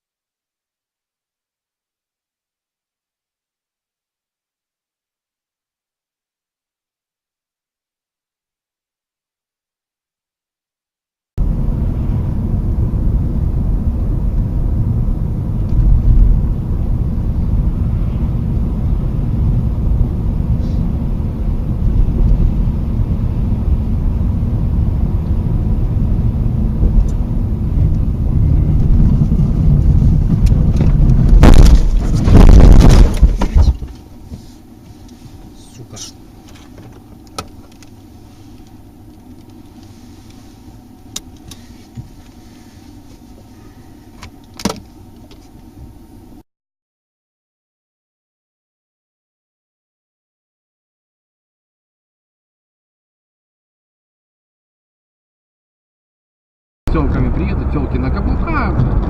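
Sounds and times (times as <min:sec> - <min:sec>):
car road and engine rumble: 0:11.4 - 0:46.4, 0:56.9 - 0:59.0
quiet hum: 0:11.5 - 0:46.4
loud rushing burst: 0:23.4 - 0:33.8.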